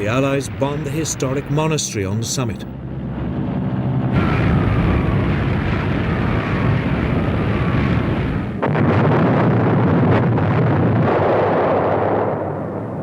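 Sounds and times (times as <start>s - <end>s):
aircraft engines droning: 0.0s - 8.6s
explosion rumble: 0.0s - 13.0s.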